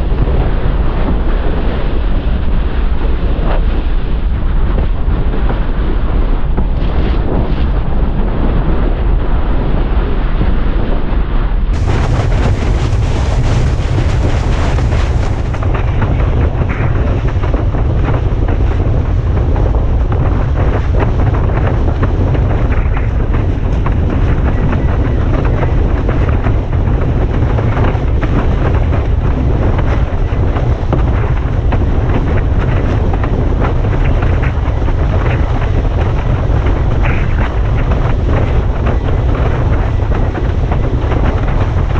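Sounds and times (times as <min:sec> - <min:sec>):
wind buffeting microphone: 0:00.0 - 0:41.9
water noise: 0:11.8 - 0:28.2.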